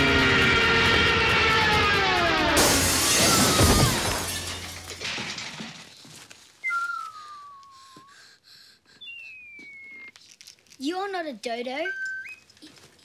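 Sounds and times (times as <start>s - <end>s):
window glass shattering: 2.6s - 6.0s
thin falling whistles: 6.6s - 8.2s, 9.0s - 10.3s, 11.8s - 12.5s.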